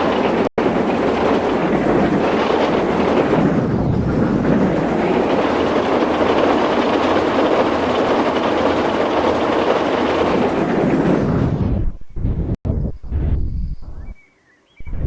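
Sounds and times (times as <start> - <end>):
wheels clattering on rails: 0.0 - 11.5
train rumbling: 0.0 - 14.0.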